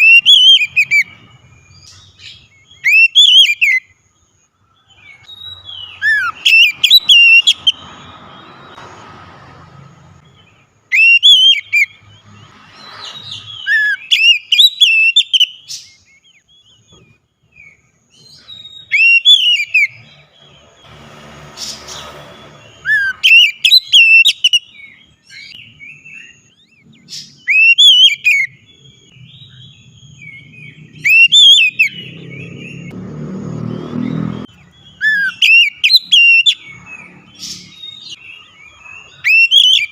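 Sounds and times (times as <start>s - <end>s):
bird singing whistled phrases: 0.0s - 3.9s, 5.0s - 8.0s, 10.9s - 12.0s, 12.8s - 20.0s, 22.8s - 32.8s, 34.7s - 36.6s, 39.0s - 39.9s.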